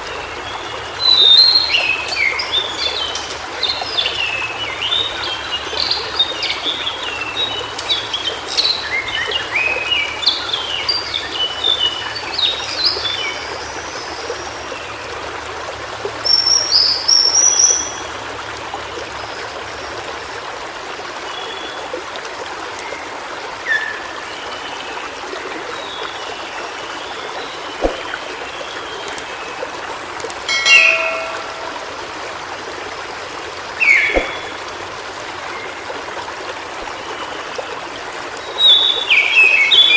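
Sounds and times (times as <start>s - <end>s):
stream rushing: 0.0s - 14.1s, 15.0s - 39.9s
bird singing warble: 0.4s - 13.4s, 30.5s - 32.1s, 33.8s - 34.6s.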